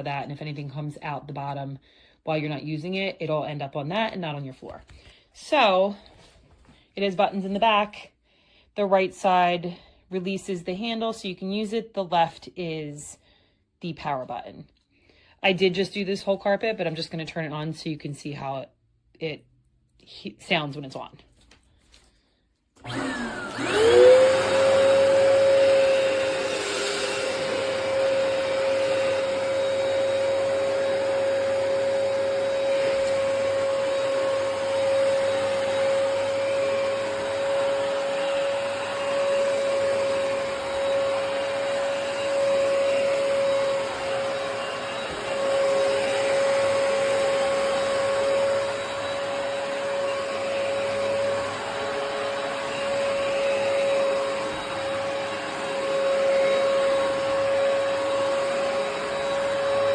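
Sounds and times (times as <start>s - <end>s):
carpet cleaner motor whine: 22.8s - 59.9s.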